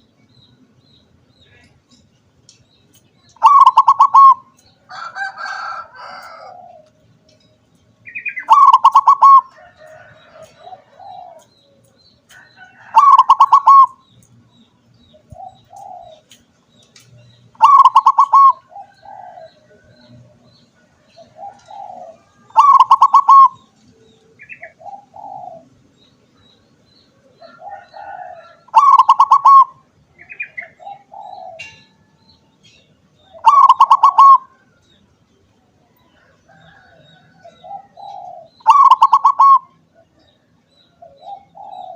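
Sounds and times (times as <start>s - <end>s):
dove cooing: 3.4s - 7.1s, 8.1s - 11.9s, 12.6s - 14.0s, 15.1s - 16.4s, 17.5s - 25.8s, 27.2s - 32.2s, 33.2s - 34.8s, 35.9s - 41.9s.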